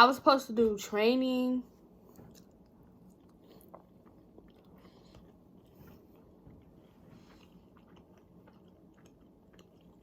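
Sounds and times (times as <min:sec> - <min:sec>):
chewing food: 0:02.1 - 0:10.0.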